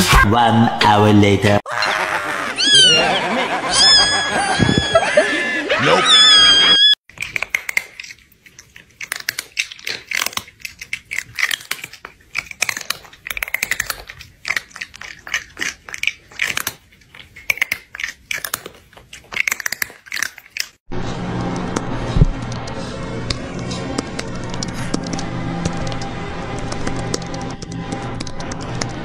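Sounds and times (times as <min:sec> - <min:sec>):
open-mouthed chewing and crunching: 0:07.1 - 0:29.0.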